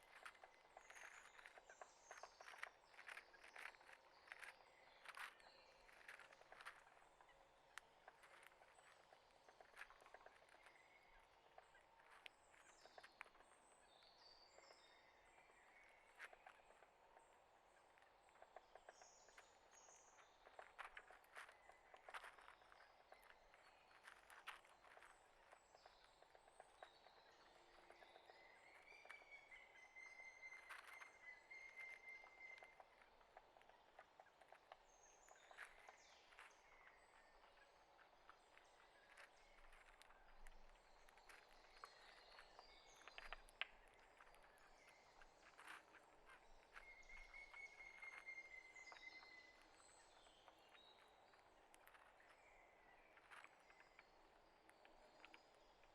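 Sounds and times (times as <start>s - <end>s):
small birds chirping: 0.0s - 55.9s
small irregular clicks: 0.0s - 55.9s.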